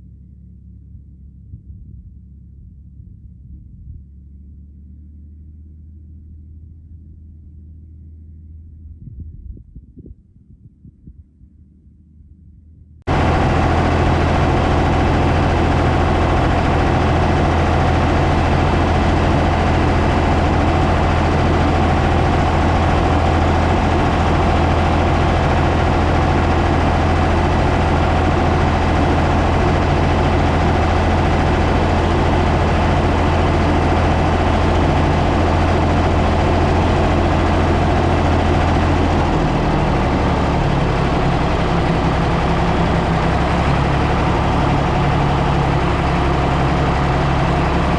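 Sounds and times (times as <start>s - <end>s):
backhoe loader engine running: 13.1s - 47.9s.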